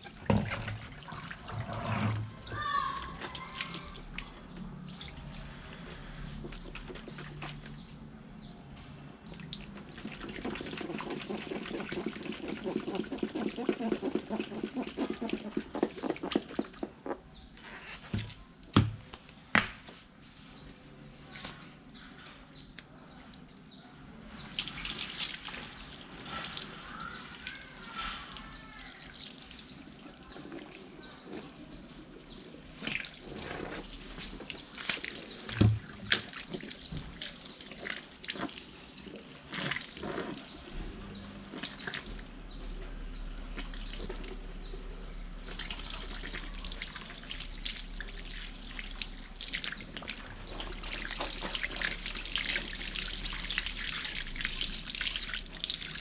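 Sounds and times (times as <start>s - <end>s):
liquid trickling and dripping: 0.0s - 17.5s, 24.3s - 56.0s.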